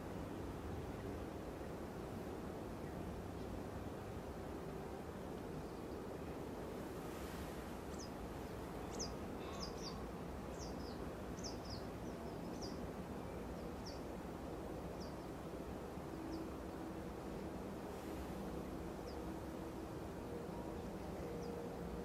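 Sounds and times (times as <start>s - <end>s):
small bird high calls: 8.9s - 12.8s.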